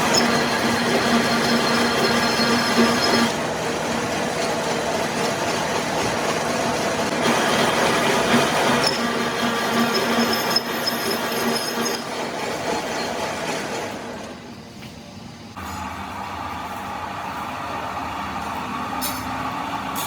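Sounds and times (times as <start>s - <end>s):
metalworking machine rush: 0.0s - 14.5s.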